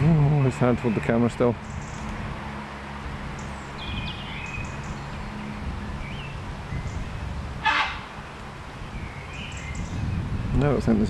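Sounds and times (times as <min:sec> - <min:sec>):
small birds chirping: 0:00.0 - 0:11.0
harsh bird call: 0:03.4 - 0:08.4.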